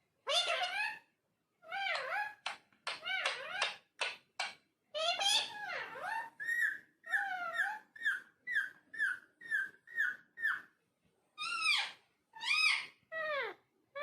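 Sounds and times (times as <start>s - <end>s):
parakeet calling: 0.2s - 1.0s, 5.0s - 10.7s, 11.4s - 14.0s.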